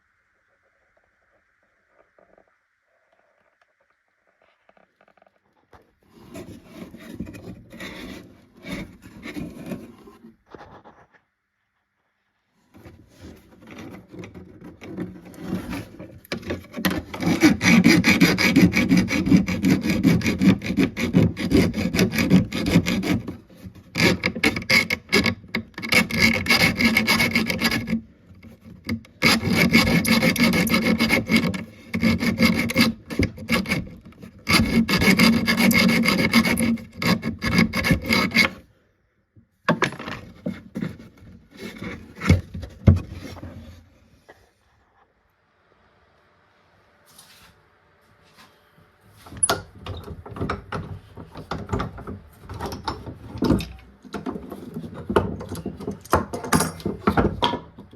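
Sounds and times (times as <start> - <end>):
hand tool scraping wood: 6.0 - 11.0, 12.7 - 38.7, 39.7 - 44.4.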